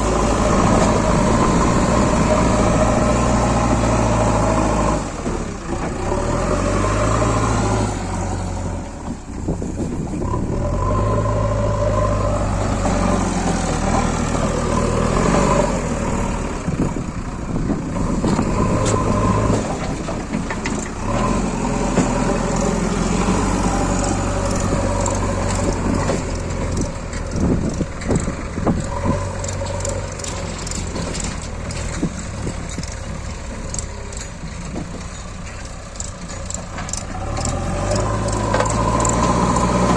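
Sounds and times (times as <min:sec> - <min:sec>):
backhoe diesel engine: 0:00.0 - 0:39.9
knocks and clatter: 0:17.6 - 0:22.8, 0:24.0 - 0:39.9.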